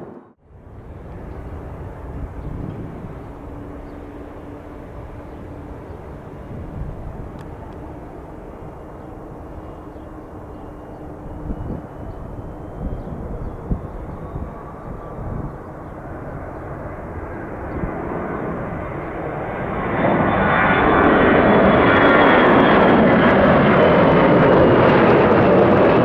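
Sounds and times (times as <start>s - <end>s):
distant jet engine rumble: 0.0s - 26.0s.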